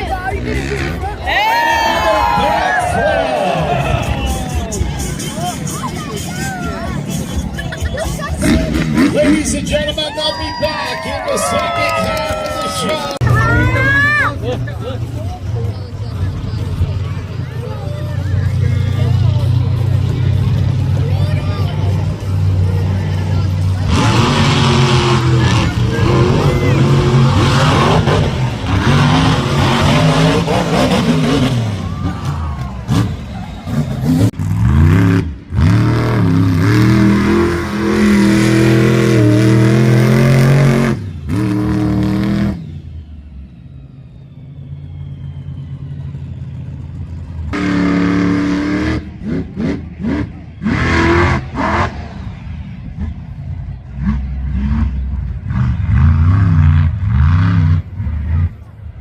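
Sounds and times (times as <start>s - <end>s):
monster truck engines revving: 0.0s - 59.0s
engine idling: 42.6s - 47.6s.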